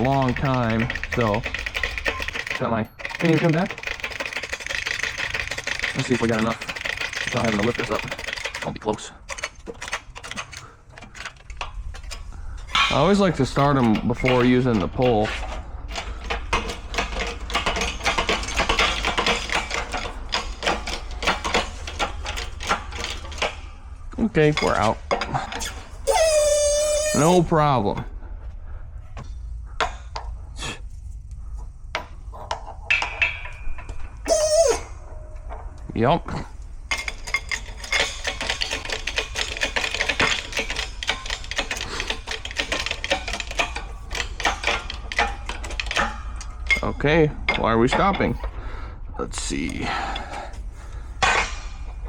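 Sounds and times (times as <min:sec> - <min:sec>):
metallic clicking and tapping: 0:00.0 - 0:12.2
shop press metallic clicking: 0:00.0 - 0:23.8, 0:36.9 - 0:48.2
steady low hum: 0:07.9 - 0:38.6.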